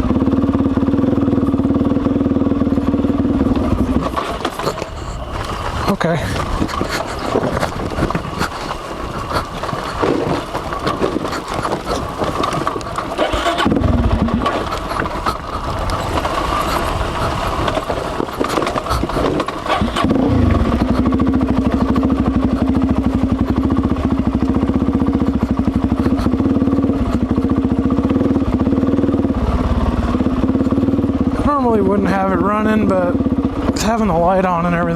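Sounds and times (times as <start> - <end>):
motorcycle engine idling: 0.0 - 34.9
rustling and scraping: 3.5 - 21.2.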